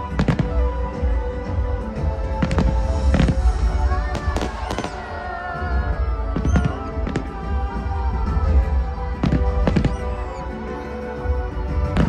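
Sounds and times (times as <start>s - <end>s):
steady music: 0.0s - 12.0s
fireworks bangs: 2.4s - 7.5s.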